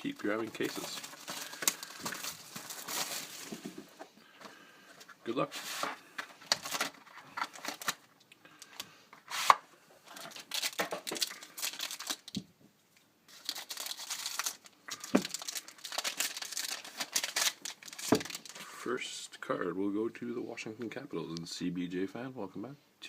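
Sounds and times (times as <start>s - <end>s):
wrappers tearing and crinkling: 0.0s - 3.6s, 6.4s - 8.0s, 9.3s - 12.4s, 13.3s - 18.6s.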